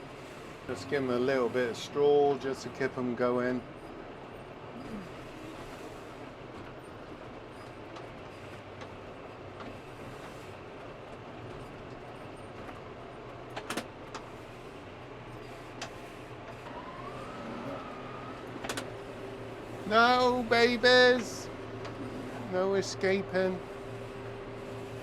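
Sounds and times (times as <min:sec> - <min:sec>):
engine humming steadily: 0:12.7 - 0:25.0.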